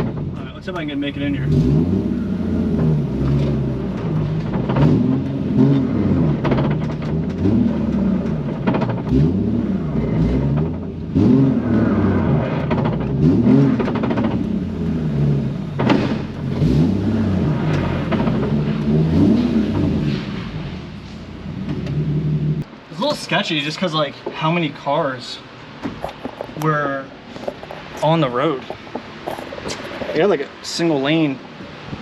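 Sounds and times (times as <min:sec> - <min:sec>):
car engine revving: 0:00.0 - 0:22.7, 0:25.9 - 0:32.0
sharp knocks: 0:15.8 - 0:16.3.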